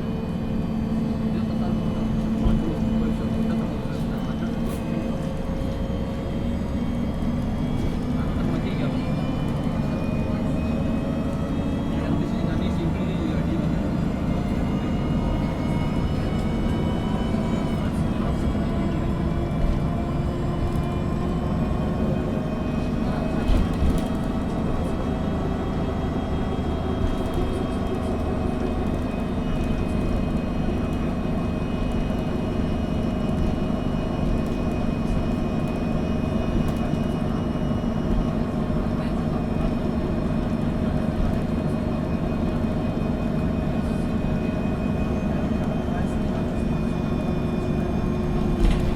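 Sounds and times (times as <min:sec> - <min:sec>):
bus engine rumble and whine: 0:00.0 - 0:48.9.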